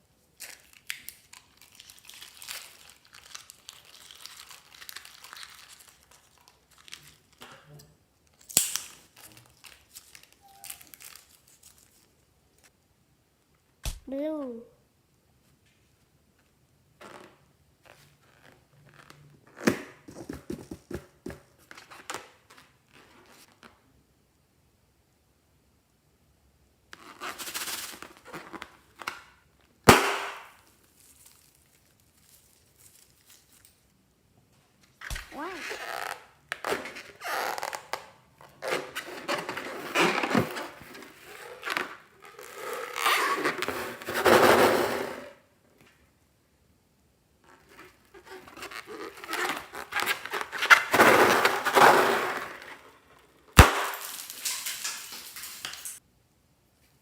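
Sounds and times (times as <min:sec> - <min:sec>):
toy crinkles and squelchy pops: 0:00.4 - 0:07.5, 0:08.3 - 0:12.1
sharp snap: 0:08.5 - 0:09.0, 0:13.8 - 0:14.1.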